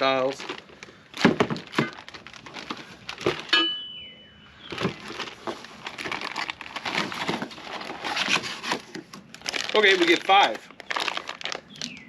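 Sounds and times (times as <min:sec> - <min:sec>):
small clatter and rustling: 0:00.2 - 0:03.6, 0:04.7 - 0:09.4.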